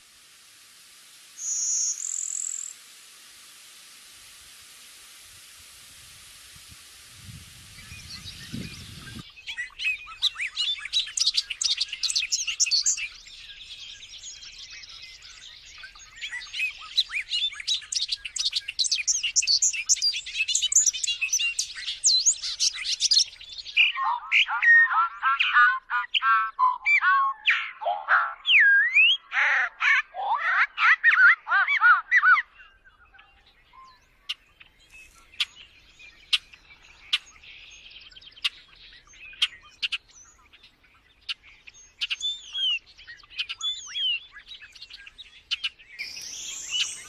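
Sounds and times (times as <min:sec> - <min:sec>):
steady hiss: 0:00.0 - 0:23.8, 0:46.0 - 0:47.0
whistled bird calls: 0:01.4 - 0:02.8, 0:07.8 - 0:47.0
songbirds chirping and trilling: 0:07.3 - 0:47.0.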